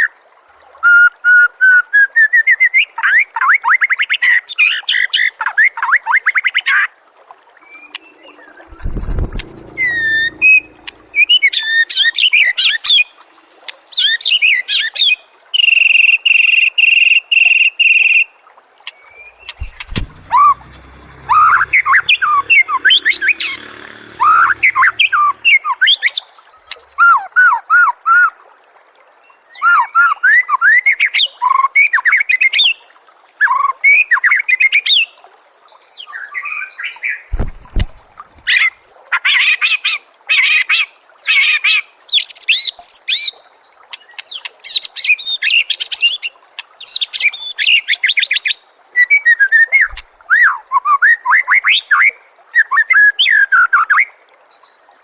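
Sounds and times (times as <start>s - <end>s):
bird rattling trills: 7.7s - 11.6s
low thump: 19.5s - 25.3s, 37.3s - 38.5s.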